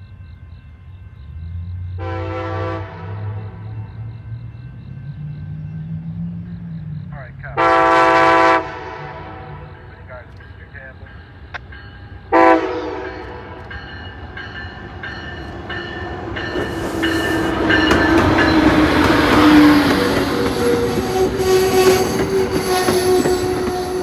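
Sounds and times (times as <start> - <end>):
railroad crossing bell dinging: 0.0 - 24.0
train rumbling past: 0.0 - 24.0
locomotive horn blast: 2.0 - 3.6, 7.5 - 10.2, 12.3 - 13.6, 16.6 - 24.0
steel wheels squealing on rails: 13.0 - 24.0.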